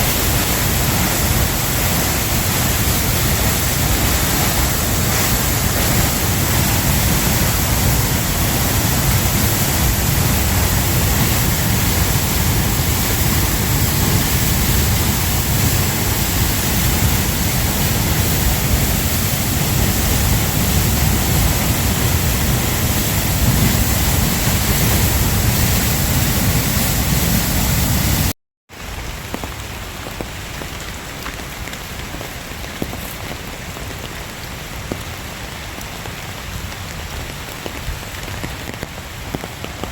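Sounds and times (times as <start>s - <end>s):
waterfall rushing: 0.0s - 28.3s
heavy rain: 0.0s - 39.9s
rain patter on surfaces: 0.0s - 39.9s.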